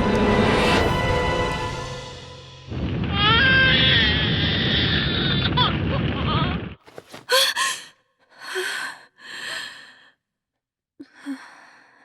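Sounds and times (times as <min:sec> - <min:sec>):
heavy breathing: 0:06.9 - 0:10.2
person gasping: 0:06.9 - 0:10.2.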